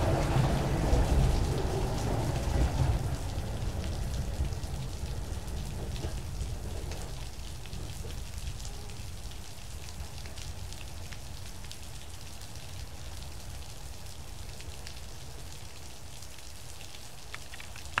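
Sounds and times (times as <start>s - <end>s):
heavy rain falling: 0.0s - 18.0s
raindrops ticking: 14.5s - 18.0s.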